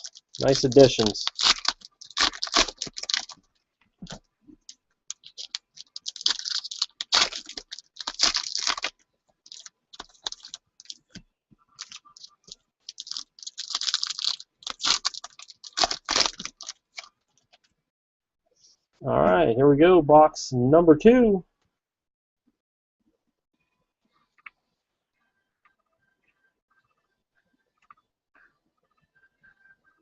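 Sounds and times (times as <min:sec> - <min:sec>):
packaging rustling: 0:00.0 - 0:11.2, 0:11.8 - 0:17.1.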